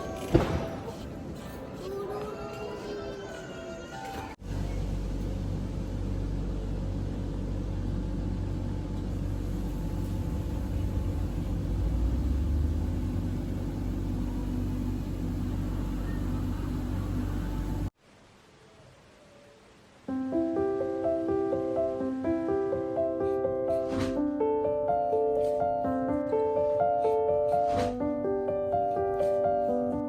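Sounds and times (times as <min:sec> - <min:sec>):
moving vehicle rumbling: 0:04.4 - 0:18.0.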